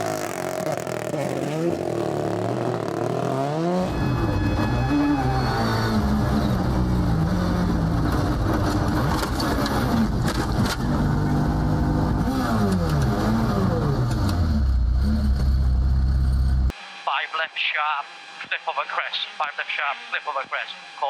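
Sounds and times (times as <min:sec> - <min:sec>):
rally car engine revving: 0:00.0 - 0:16.7.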